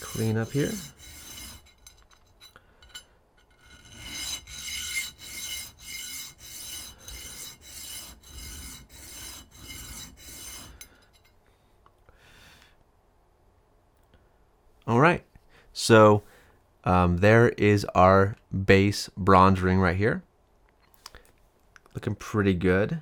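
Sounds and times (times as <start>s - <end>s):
hand file rasping on brass: 0.0s - 11.2s.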